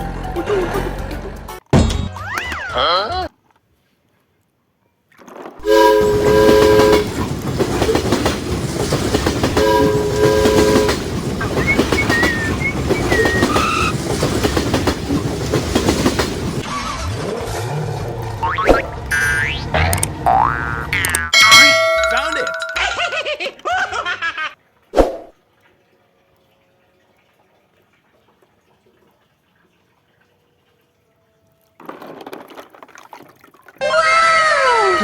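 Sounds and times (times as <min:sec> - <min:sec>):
train horn chord: 0:05.6 - 0:07.2, 0:09.5 - 0:11.1
train running on rails: 0:05.6 - 0:16.7.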